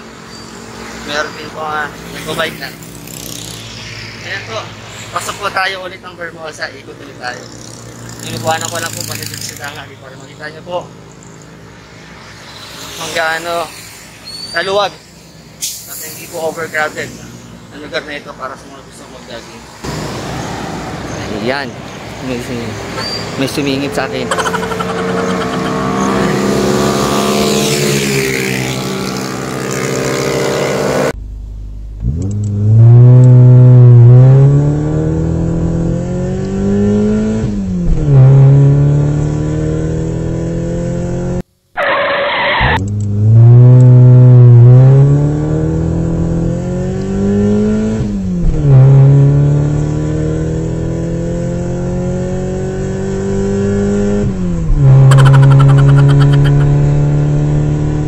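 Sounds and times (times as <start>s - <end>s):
car engine accelerating: 22.3s - 58.0s.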